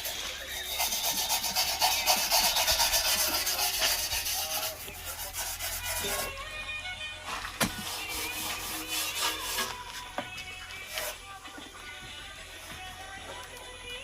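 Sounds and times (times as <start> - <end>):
brush scrubbing: 0.0 - 6.4, 7.3 - 9.9.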